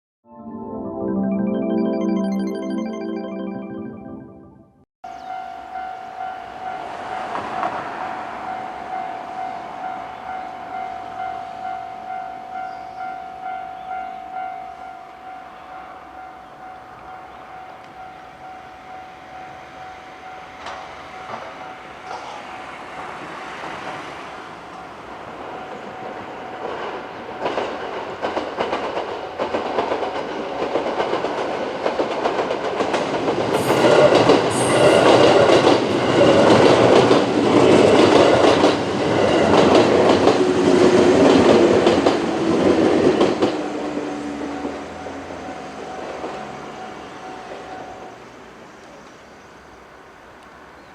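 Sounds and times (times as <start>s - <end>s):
level crossing warning bell: 5.1s - 22.7s, 24.7s - 27.6s, 43.9s - 48.1s
electric train rumbling: 5.2s - 48.7s.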